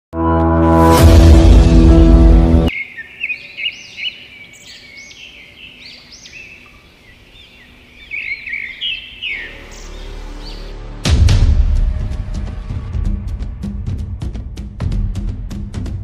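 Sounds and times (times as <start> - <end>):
songbirds chirping: 2.7 - 11.0.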